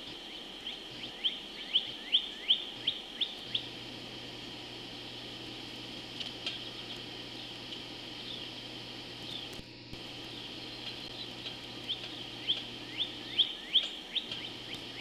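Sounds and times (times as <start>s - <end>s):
woodpecker calling: 0.0s - 3.8s, 9.2s - 15.0s.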